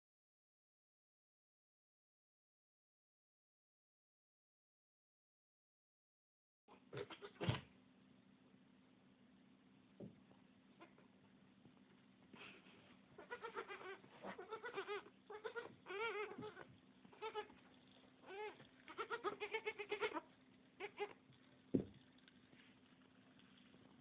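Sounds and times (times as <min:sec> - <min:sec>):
goats bleating: 0:13.2 - 0:17.6, 0:18.2 - 0:21.2.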